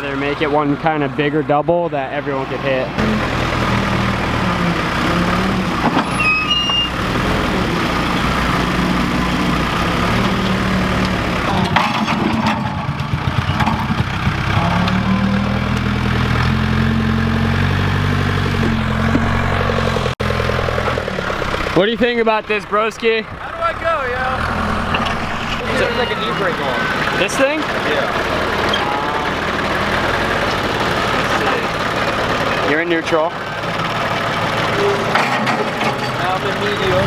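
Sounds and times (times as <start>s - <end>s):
vehicle engine running: 0.0s - 37.0s.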